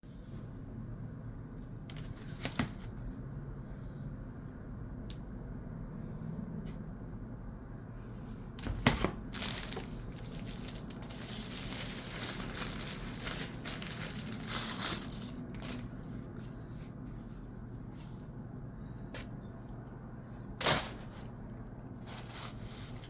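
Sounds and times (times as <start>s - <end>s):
crinkling and crushing: 8.6s - 16.4s.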